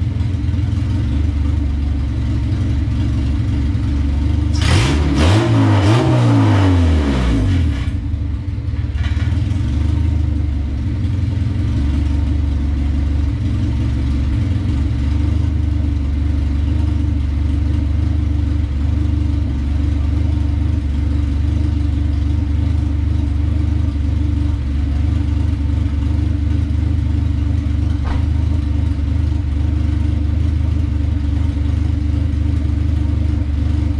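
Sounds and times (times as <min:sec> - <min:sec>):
car engine revving and idling: 0:00.0 - 0:33.9.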